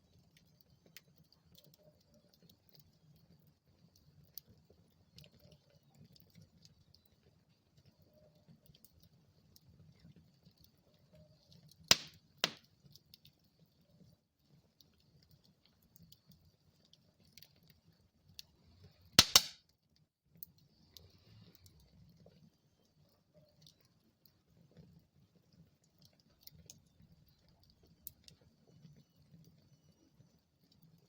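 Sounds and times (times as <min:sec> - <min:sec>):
fire crackling: 0:00.0 - 0:19.6
logs popping: 0:11.9 - 0:12.6, 0:19.2 - 0:19.6.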